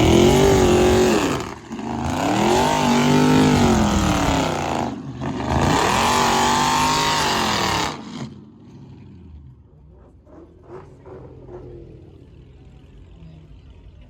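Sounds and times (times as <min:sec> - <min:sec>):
car engine revving hard: 0:00.0 - 0:08.4.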